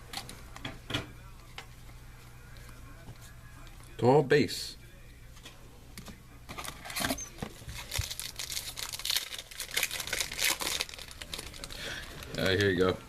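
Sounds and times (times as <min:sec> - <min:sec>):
foil wrapper crinkling and tearing: 0:06.6 - 0:13.0.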